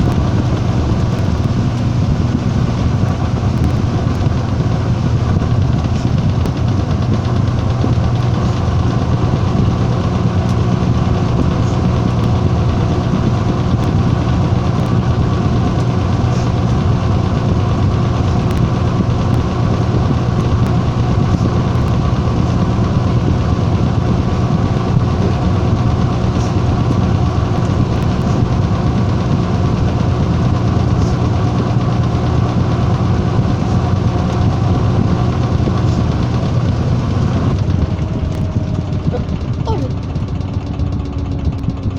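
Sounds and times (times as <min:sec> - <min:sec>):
washing machine motor hum: 0:00.0 - 0:41.9.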